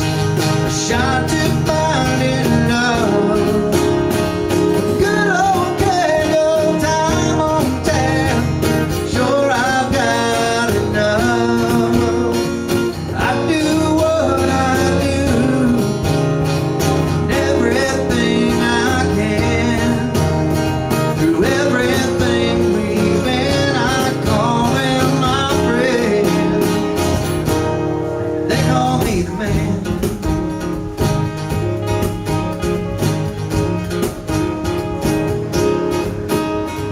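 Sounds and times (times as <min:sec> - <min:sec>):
cajon beat: 0:00.0 - 0:36.9
strummed acoustic guitar: 0:00.0 - 0:36.9
person singing: 0:00.6 - 0:16.3, 0:17.3 - 0:20.4.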